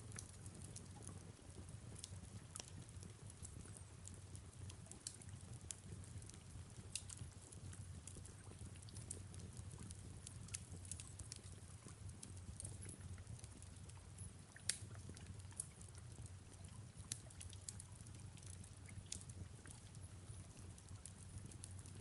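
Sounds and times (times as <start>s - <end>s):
fireplace crackling: 1.5s - 22.0s
sharp pops and snaps: 14.6s - 14.9s.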